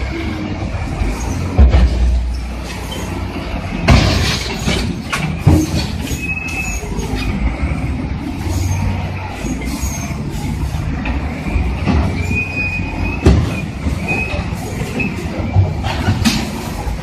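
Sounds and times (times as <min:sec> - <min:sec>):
diesel engines rumbling: 0:00.0 - 0:17.0
crawler tracks squealing: 0:01.0 - 0:01.6, 0:02.2 - 0:17.0
loud metal clanking impacts: 0:03.7 - 0:06.2.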